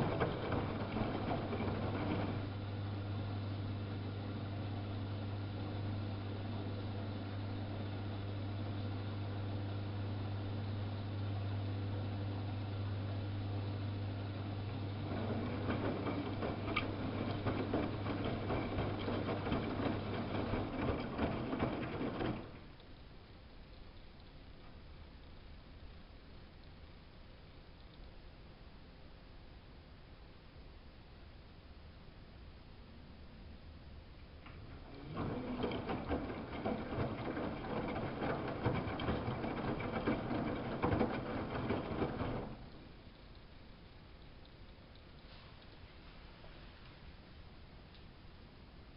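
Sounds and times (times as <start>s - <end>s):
washing machine rattling and clicking: 0.0s - 2.6s, 14.6s - 22.7s, 34.5s - 42.8s
washing machine hum: 0.0s - 25.6s, 32.8s - 48.0s.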